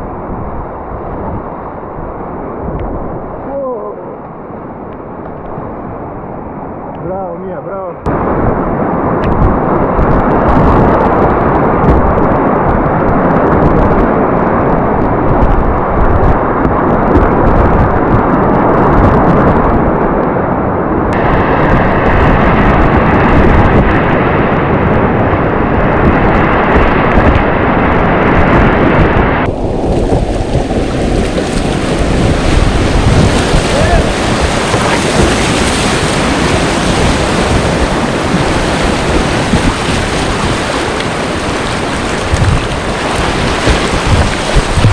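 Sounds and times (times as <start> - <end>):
wind buffeting microphone: 0.0 - 44.9
whitewater rapids rushing: 29.2 - 44.9.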